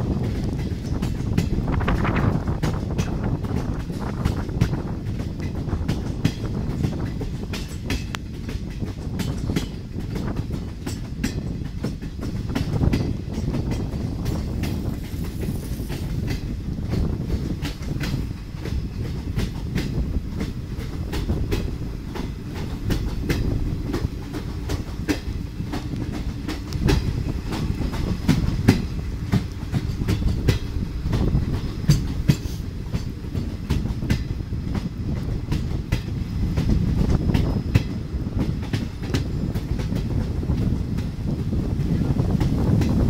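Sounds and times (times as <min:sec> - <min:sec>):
rumble of wheels on rail: 0:00.0 - 0:43.0
wheels clicking over rail joints: 0:00.0 - 0:43.0.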